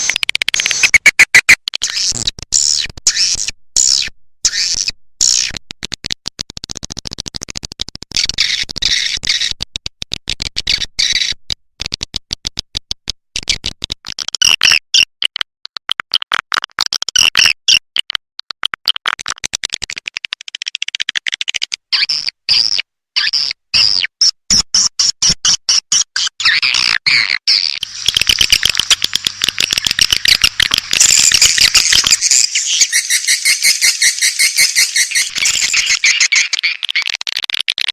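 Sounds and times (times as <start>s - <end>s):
swiftlets twittering: 27.8s - 37.0s.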